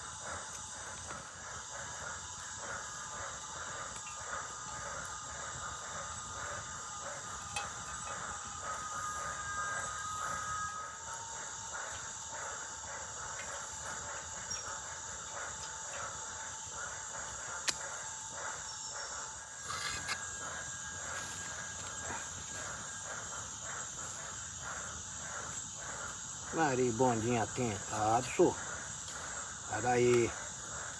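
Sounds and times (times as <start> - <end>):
cricket trill: 0.0 - 30.9
fast pulsing insect chatter: 0.0 - 30.9
thin whistling tones: 7.5 - 11.0, 18.6 - 24.3.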